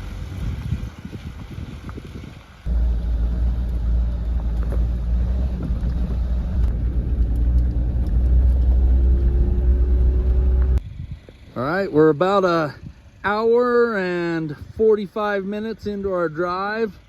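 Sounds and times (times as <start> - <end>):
vehicle driving on dirt road: 0.0 - 17.0
faint rising tone: 2.7 - 10.8.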